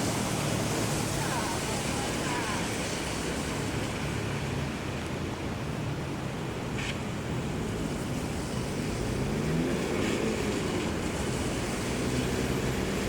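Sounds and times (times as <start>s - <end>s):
tyres hissing on wet road: 0.0s - 13.0s
vehicle engine accelerating: 8.4s - 13.0s.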